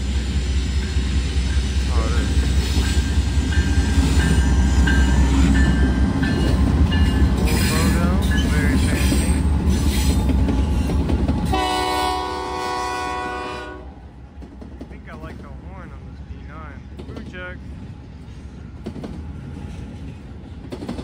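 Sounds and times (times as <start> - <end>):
rail clatter: 0.0 - 12.5, 14.0 - 21.0
diesel locomotive rumble: 0.0 - 21.0
locomotive horn blast: 11.5 - 14.0.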